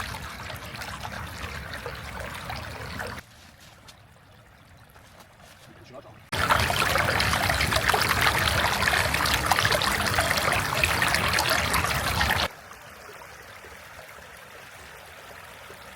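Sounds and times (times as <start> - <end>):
loud splashing of water: 6.3 - 12.5.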